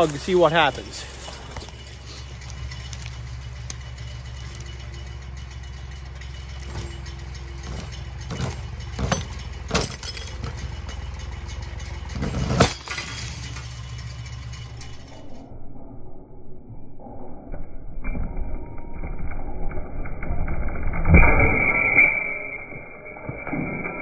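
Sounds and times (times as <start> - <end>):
tractor engine running: 0.0 - 15.5.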